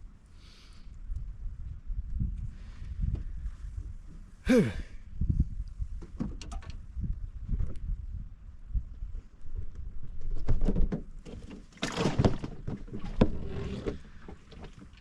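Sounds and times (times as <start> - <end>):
knocks and thumps in boat: 10.2 - 15.0.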